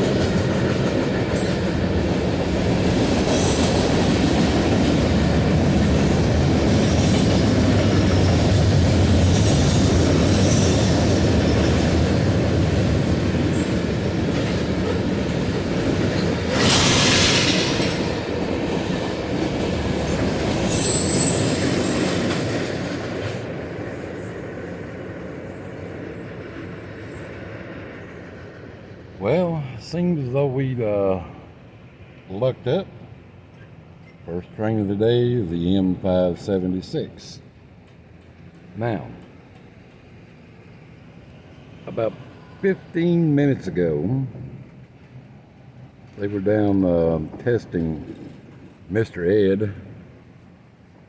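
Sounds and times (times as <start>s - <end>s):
train wheels rumbling on rail: 0.0s - 51.0s
high-pitched wheel squeal: 20.7s - 22.0s.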